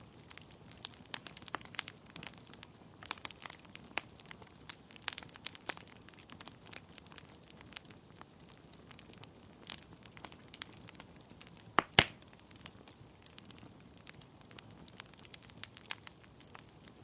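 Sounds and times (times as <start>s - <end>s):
low steady hiss: 0.0s - 17.0s
wood fire crackling and popping: 0.0s - 17.0s.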